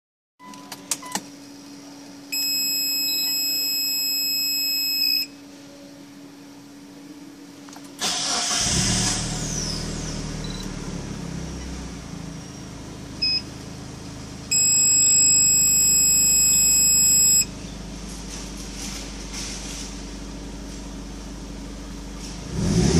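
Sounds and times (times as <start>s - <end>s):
steady electronic beep: 2.4s - 5.3s, 10.4s - 10.7s, 14.5s - 17.5s
short beep: 2.4s - 5.4s, 10.4s - 10.7s, 14.5s - 17.5s
car engine starting and idling: 7.7s - 22.9s.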